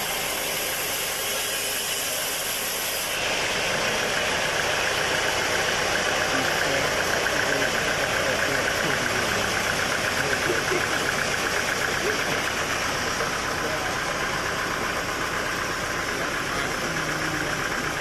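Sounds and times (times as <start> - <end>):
sawmill machinery running: 0.0 - 18.0.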